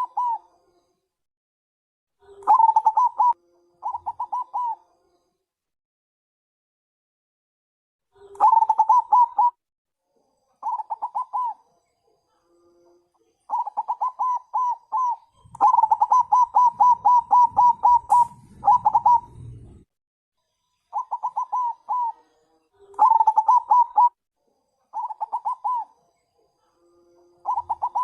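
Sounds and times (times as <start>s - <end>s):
dove cooing in rolling notes: 0.0s - 0.5s, 2.2s - 4.8s, 8.2s - 9.6s, 10.6s - 11.7s, 13.5s - 19.8s, 20.9s - 24.2s, 24.9s - 26.0s, 26.6s - 28.0s
low rumble: 17.2s - 19.9s.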